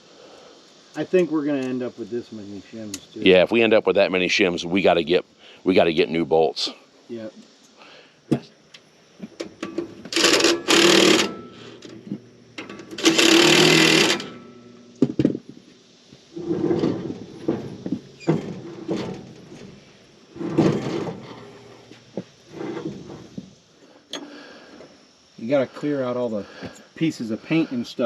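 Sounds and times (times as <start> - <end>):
metal parts knocking: 9.6 - 12.0, 12.6 - 15.4.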